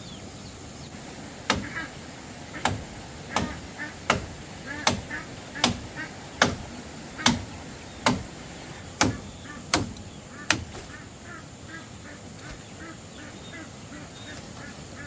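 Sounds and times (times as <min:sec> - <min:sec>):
blade chopping strikes: 0:01.5 - 0:01.7, 0:02.6 - 0:05.8, 0:06.4 - 0:06.6, 0:07.2 - 0:08.3, 0:09.0 - 0:10.9
faint poultry calls: 0:01.6 - 0:06.4, 0:08.7 - 0:15.0.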